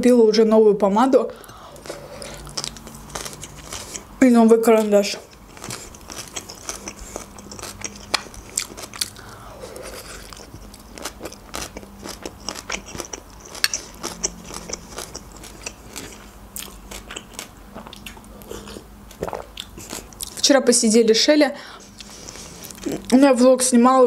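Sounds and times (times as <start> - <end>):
chewing mouth clicks and smacks: 5.3 - 9.3, 10.2 - 20.4.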